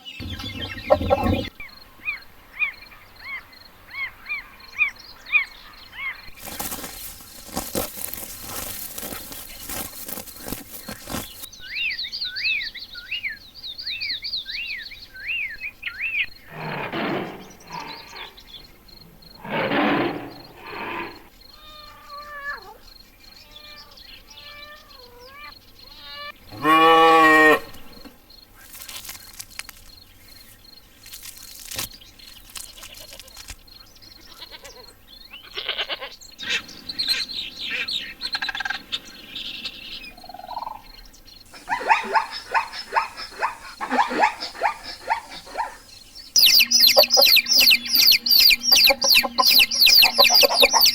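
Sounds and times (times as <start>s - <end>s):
rapid chirping calls: 0.0s - 1.5s, 39.6s - 50.9s
wavering pitched animal calls: 0.0s - 1.5s, 41.5s - 50.9s.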